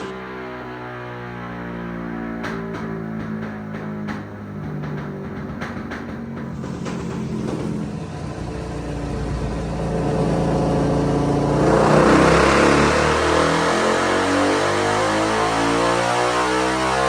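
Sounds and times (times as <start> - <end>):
motorcycle engine revving on dyno: 5.6 - 17.0.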